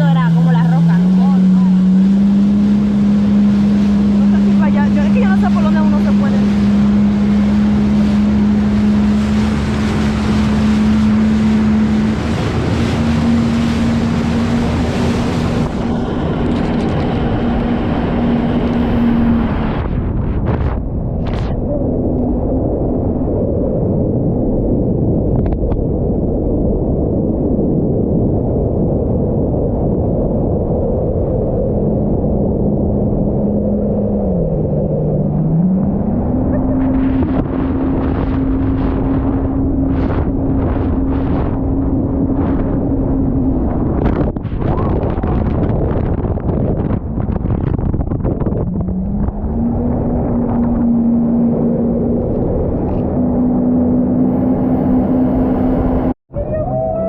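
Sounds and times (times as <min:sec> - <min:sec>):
jet ski engine running: 0:00.0 - 0:22.6, 0:31.6 - 0:57.0
wind noise on microphone: 0:00.0 - 0:57.0.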